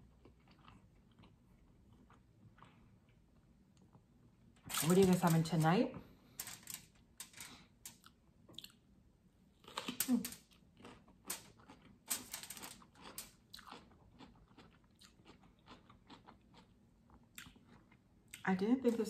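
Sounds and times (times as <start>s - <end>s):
chewing crunchy food: 0.0s - 4.0s, 7.9s - 8.8s, 9.6s - 18.5s.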